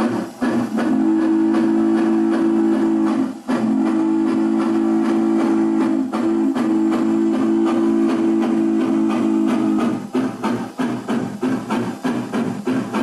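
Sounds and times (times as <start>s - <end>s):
locomotive chime whistle blasts: 0.0s - 10.0s
faint locomotive chuffing: 0.0s - 13.0s.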